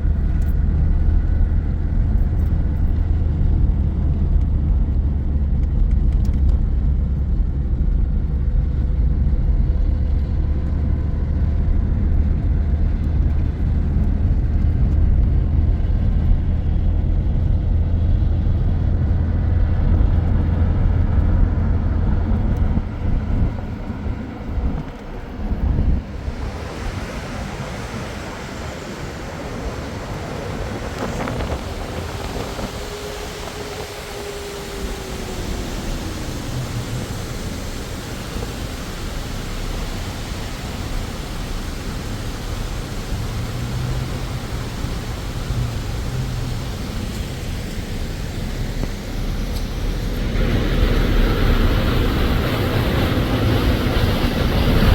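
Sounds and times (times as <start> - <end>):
vehicle low rumble: 0.0 - 54.9
steady even hiss: 26.0 - 52.8.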